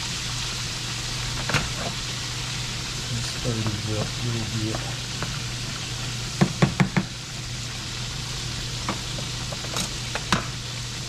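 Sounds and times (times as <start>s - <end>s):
steak sizzling in grease: 0.0s - 11.0s
steady low hum: 2.1s - 6.4s.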